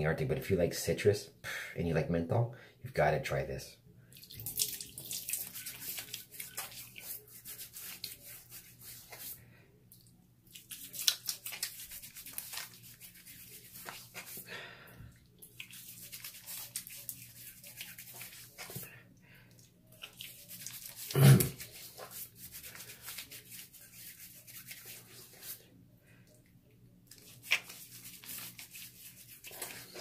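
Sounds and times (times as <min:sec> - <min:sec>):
wet rubbing of hands with soap: 0:04.2 - 0:09.4, 0:10.0 - 0:14.5, 0:15.3 - 0:25.7, 0:27.1 - 0:30.0.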